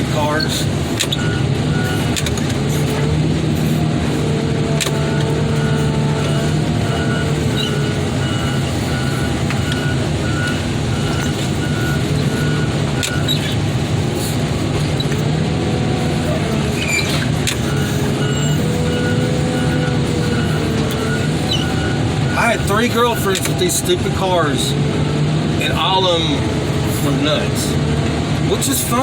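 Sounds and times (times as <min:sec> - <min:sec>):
diesel engine running: 0:00.0 - 0:29.0
reversing alarm beeping: 0:00.4 - 0:02.2, 0:04.8 - 0:13.6, 0:16.2 - 0:23.6.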